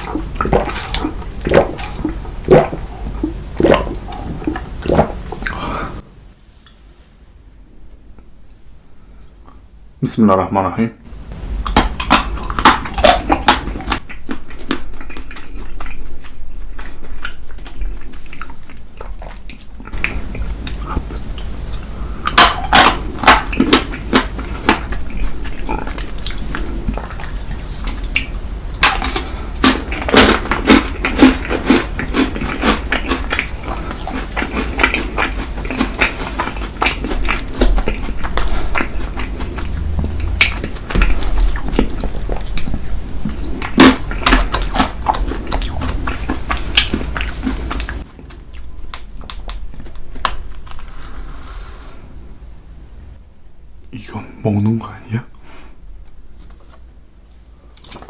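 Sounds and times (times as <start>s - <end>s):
chewing: 0.0s - 6.0s, 11.6s - 51.0s
steady low hum: 0.0s - 57.9s.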